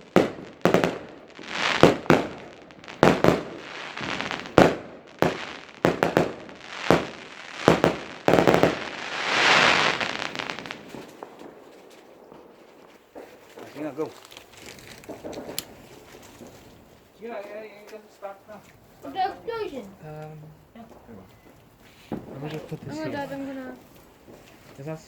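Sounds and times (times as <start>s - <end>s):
fireworks hissing burst: 0.0s - 14.1s
fireworks bangs and cracks: 0.0s - 19.7s, 20.4s - 25.0s.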